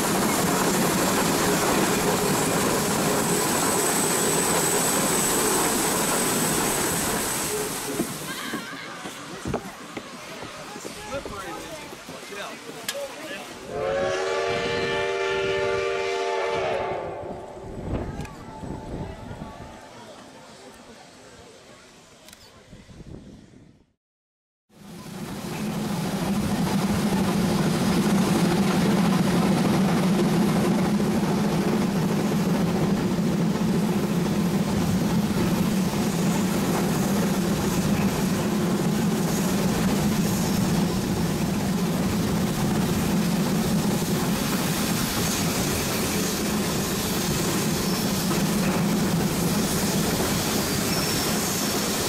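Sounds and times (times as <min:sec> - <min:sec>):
train running rattle and rumble: 0:00.0 - 0:13.7, 0:24.8 - 0:52.0.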